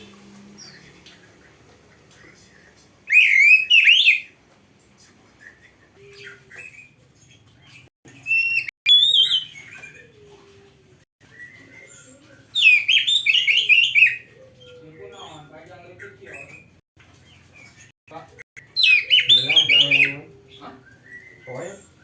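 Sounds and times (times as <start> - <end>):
bird singing whistled phrases: 3.1 - 4.3, 8.3 - 9.8, 11.3 - 14.3, 18.6 - 20.2, 20.8 - 21.8.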